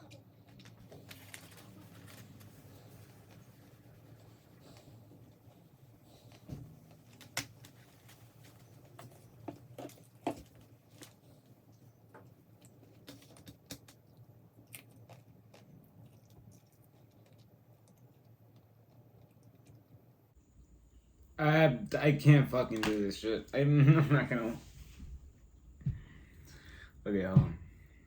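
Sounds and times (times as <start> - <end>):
chewing with crunches: 4.5 - 20.3.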